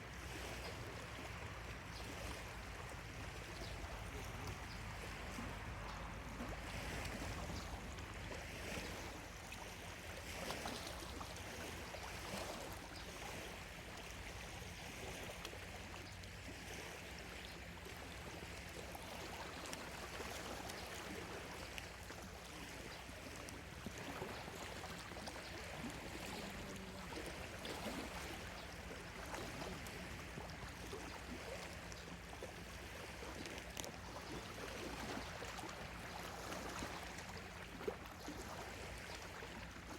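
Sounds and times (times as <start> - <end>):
lake waves lapping on shore: 0.0 - 39.9.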